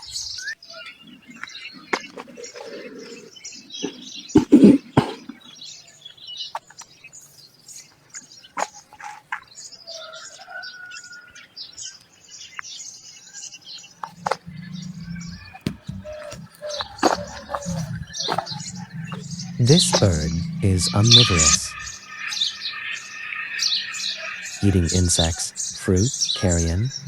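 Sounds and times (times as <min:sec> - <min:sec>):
birds chirping: 0:00.0 - 0:27.0
sharp knocks: 0:14.1 - 0:20.6.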